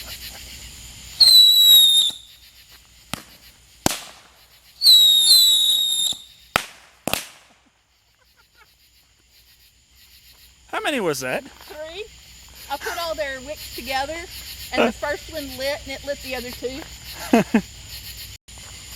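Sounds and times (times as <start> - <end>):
whistling fireworks: 0.0 - 8.6
firework bangs: 1.0 - 7.8.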